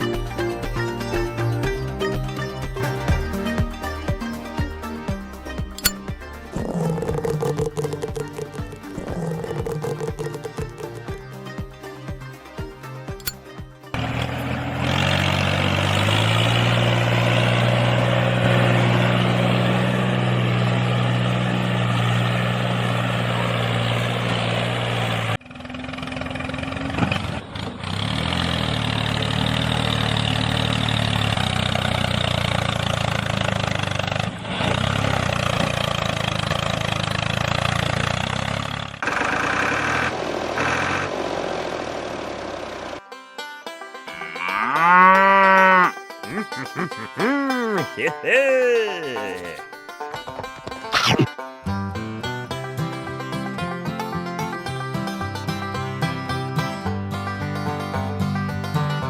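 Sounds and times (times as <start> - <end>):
small engine running: 5.8 - 11.3, 13.2 - 43.0.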